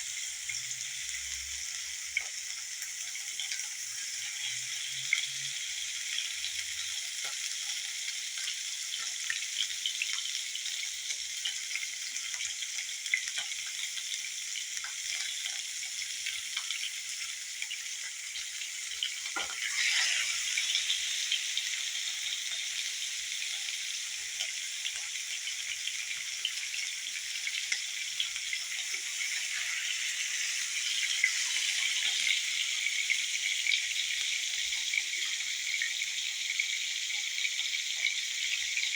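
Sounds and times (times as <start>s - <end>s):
chicken sizzling in hot oil: 0.0s - 38.9s.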